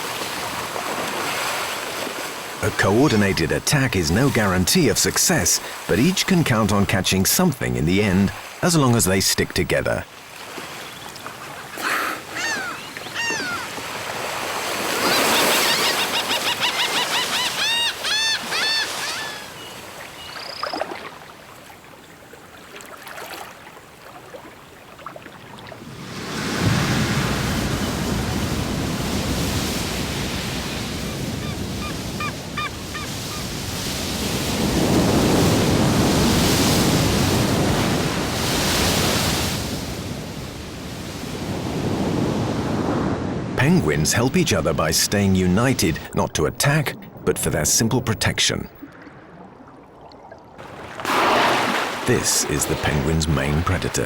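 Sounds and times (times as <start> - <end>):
waves washing in: 0.0 - 17.6, 18.4 - 54.0.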